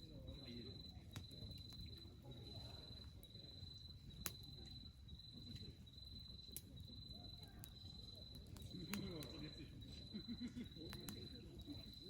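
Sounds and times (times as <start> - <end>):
crickets trilling: 0.0 - 12.0
wood fire crackling: 7.6 - 12.0.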